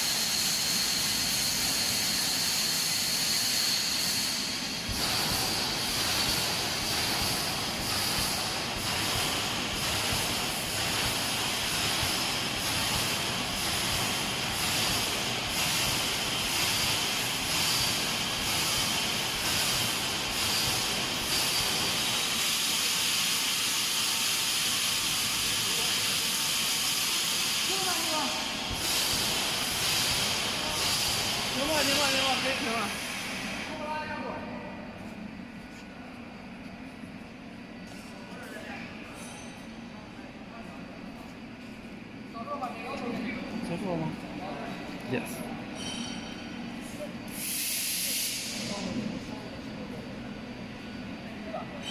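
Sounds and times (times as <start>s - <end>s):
welding machine hissing: 0.0s - 33.9s, 47.3s - 49.0s.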